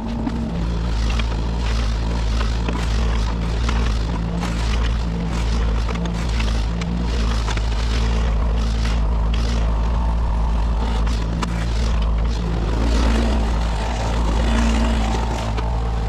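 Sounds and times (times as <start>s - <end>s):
excavator diesel engine running: 0.0s - 16.0s
short sharp clicks and scrapes: 0.1s - 10.0s.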